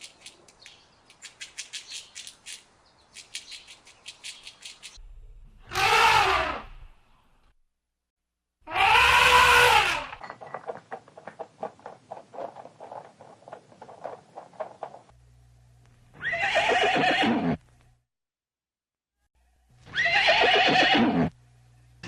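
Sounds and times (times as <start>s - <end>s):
horse whinnying: 8.7s - 10.2s, 16.2s - 17.6s, 19.9s - 21.3s
hooves on hard floor: 10.1s - 15.1s.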